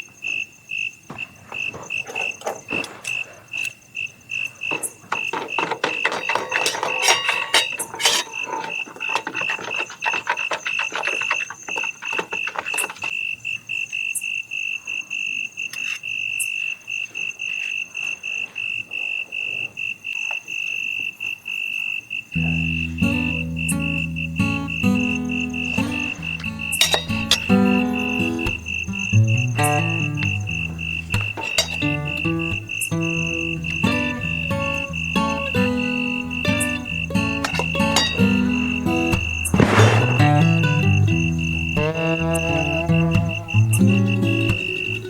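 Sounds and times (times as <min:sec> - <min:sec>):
insect chirping: 0:00.0 - 0:45.0
crackling and rustling: 0:04.5 - 0:13.2, 0:22.4 - 0:45.0.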